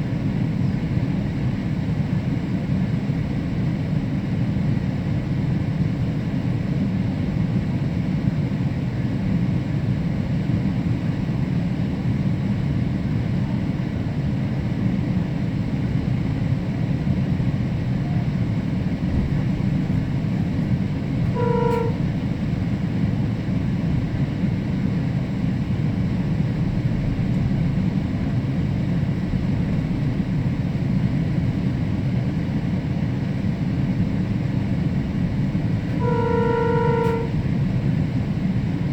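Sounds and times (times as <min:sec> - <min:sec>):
train rumbling: 0:00.0 - 0:38.9
train horn toot: 0:21.1 - 0:22.5, 0:35.8 - 0:37.6.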